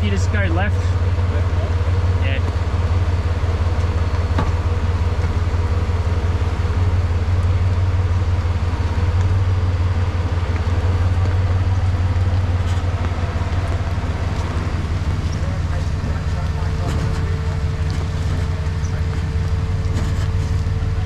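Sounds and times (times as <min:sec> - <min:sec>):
vehicle engine droning at low revs: 0:00.0 - 0:21.0.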